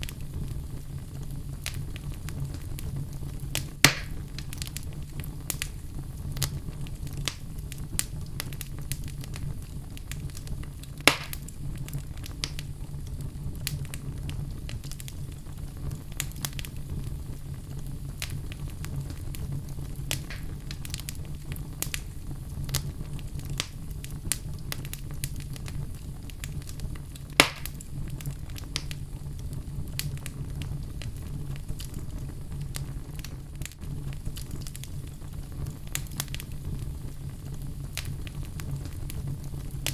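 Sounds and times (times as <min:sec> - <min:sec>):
fire crackling: 0:00.0 - 0:39.9
loud sharp pops from fire: 0:00.0 - 0:39.9
low rumble of flames: 0:00.0 - 0:39.9.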